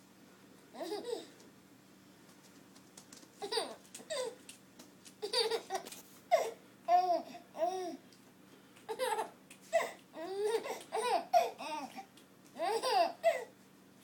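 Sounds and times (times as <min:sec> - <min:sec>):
baby laughing: 0:00.8 - 0:01.3, 0:03.4 - 0:04.4, 0:05.2 - 0:08.0, 0:08.9 - 0:13.5.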